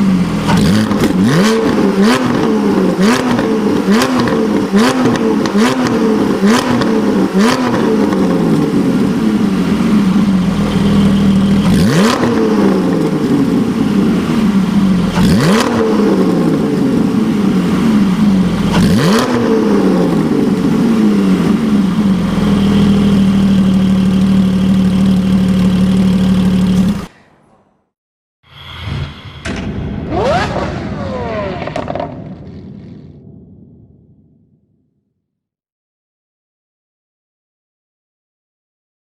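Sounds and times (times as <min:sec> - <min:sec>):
sports car engine revving: 0:00.0 - 0:27.1, 0:30.1 - 0:32.5
engine idling: 0:08.8 - 0:12.1, 0:20.2 - 0:27.1.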